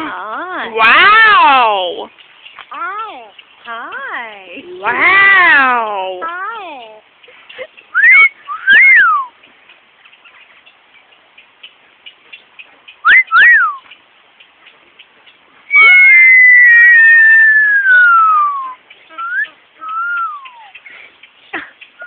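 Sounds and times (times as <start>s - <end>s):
parrot whistling: 7.9s - 9.3s, 13.0s - 13.8s, 15.7s - 20.7s.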